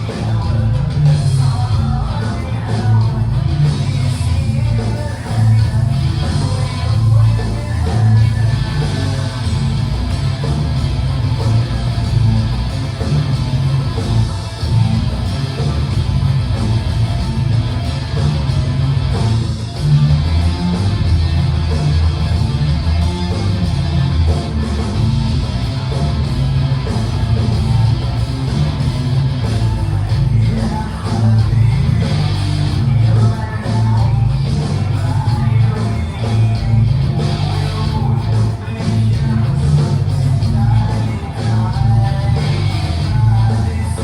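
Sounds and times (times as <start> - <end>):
electric guitar: 0.0 - 44.0
rock band instrumental: 0.0 - 44.0
strong bass line: 0.0 - 44.0.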